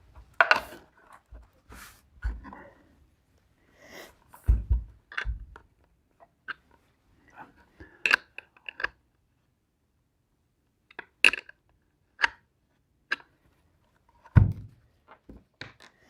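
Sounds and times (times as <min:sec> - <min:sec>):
heavy thump: 0:04.5 - 0:05.6, 0:14.4 - 0:14.8.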